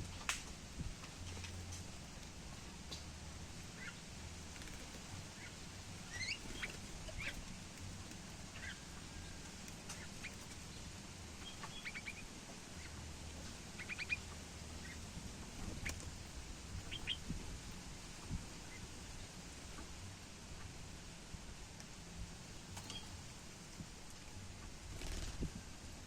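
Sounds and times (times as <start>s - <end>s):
steady low hum: 0.0s - 26.0s
small birds chirping: 1.0s - 19.9s, 22.7s - 23.4s.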